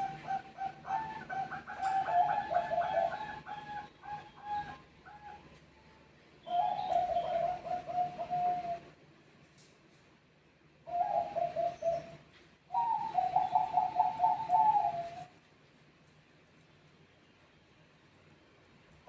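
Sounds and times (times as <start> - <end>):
doves cooing: 0.0 - 5.6, 6.4 - 9.0, 10.8 - 15.4.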